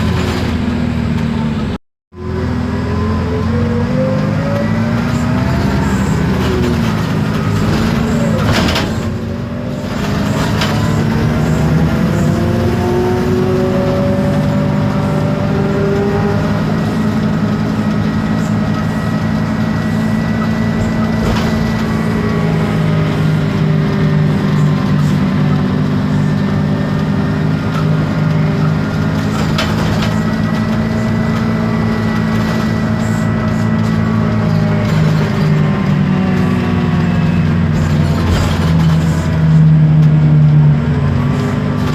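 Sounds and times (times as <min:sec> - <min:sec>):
bus engine drone: 0:00.0 - 0:41.9
gearbox whine: 0:00.0 - 0:41.9.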